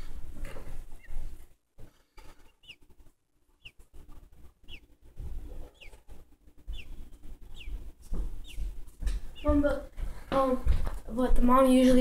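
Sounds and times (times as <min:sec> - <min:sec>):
nestling bird peeping: 0:00.8 - 0:01.4, 0:02.2 - 0:09.9.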